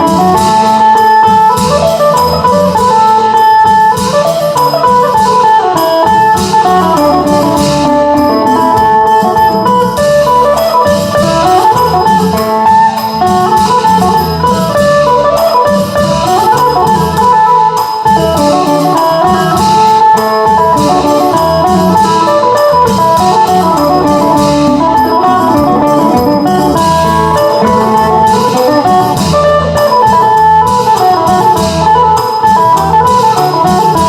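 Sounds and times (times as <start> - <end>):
plucked lute melody: 0.0 - 34.0
steady dance beat: 5.2 - 33.9.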